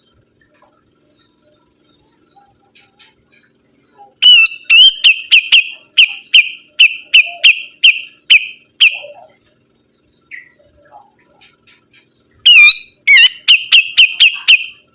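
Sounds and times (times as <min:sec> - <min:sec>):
songbird whistling calls: 0:01.1 - 0:09.4, 0:11.7 - 0:14.9.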